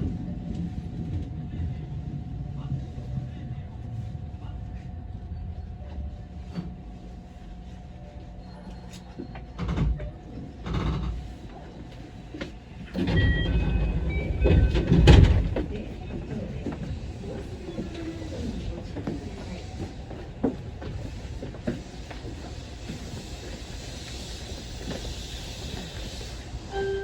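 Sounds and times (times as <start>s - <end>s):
train low hum: 0.0s - 27.0s
short high tones: 26.7s - 27.0s.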